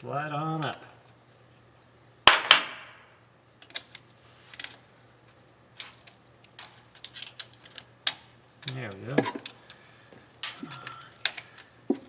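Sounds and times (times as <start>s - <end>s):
small parts and tools clicking: 3.6s - 9.8s, 10.4s - 12.0s.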